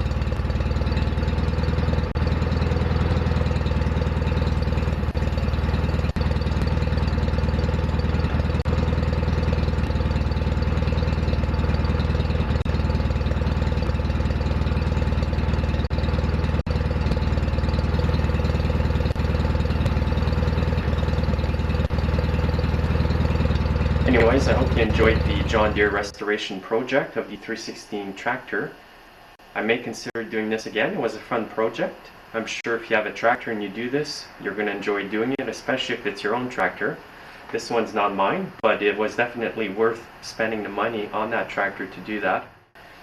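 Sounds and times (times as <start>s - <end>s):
lawn tractor engine running: 0.0s - 26.4s.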